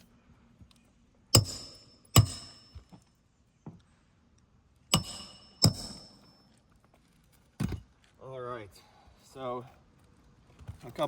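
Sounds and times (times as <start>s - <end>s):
hammer striking metal: 1.4s - 2.8s, 4.9s - 6.4s.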